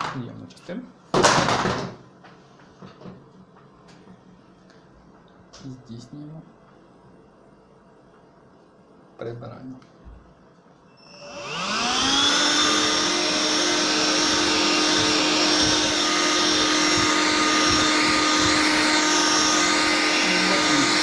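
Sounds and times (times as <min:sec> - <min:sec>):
vacuum motor whine: 0:10.9 - 0:21.0.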